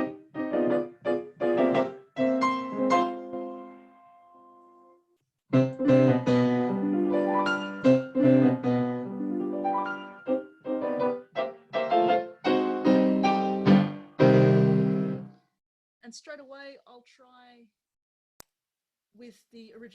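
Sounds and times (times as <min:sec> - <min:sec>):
piano playing: 0:00.0 - 0:15.3.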